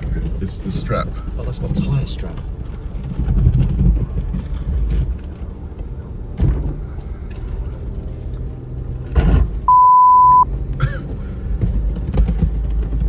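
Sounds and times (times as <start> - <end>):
low vehicle rumble: 0.0 - 13.0
censor beep tone: 9.7 - 10.4.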